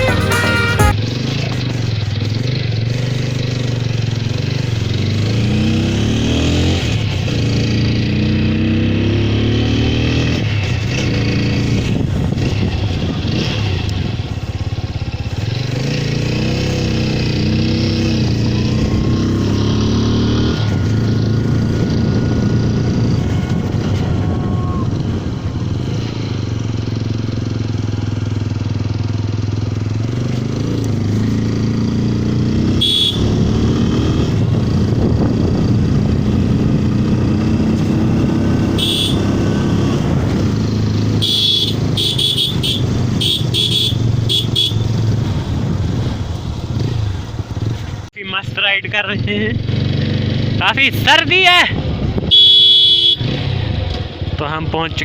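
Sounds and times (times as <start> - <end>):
short high-pitched sounds: 0.0 - 1.0
motorcycle engine accelerating: 0.0 - 48.1, 49.1 - 50.9, 51.8 - 55.0
wind noise: 21.9 - 26.2, 34.1 - 37.9, 51.7 - 52.6.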